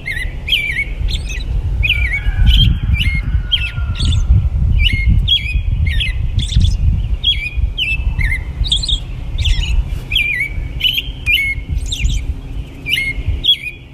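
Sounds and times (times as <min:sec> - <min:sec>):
birds chirping: 0:00.0 - 0:13.9
steady low rumble: 0:00.0 - 0:13.9.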